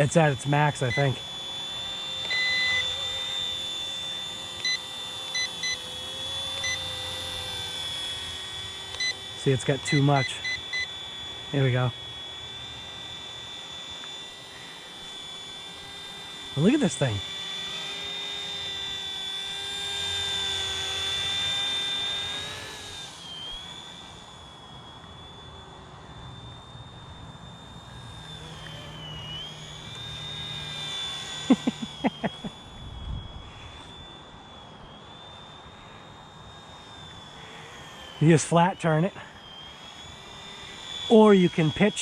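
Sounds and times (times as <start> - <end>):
short electronic beeps: 0.0 - 1.2, 2.2 - 3.0, 4.6 - 5.9, 9.0 - 11.0
rc helicopter motor whine: 0.0 - 42.0.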